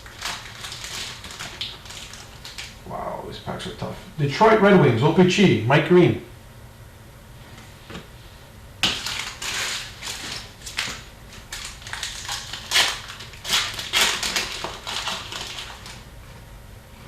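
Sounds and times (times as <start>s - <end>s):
foil wrapper tearing and crinkling: 0.0s - 2.8s, 8.8s - 16.0s.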